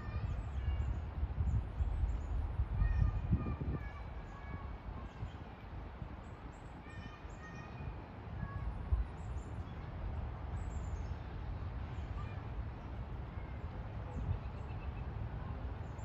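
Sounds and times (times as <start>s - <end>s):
faint bird chirps: 14.1s - 15.2s.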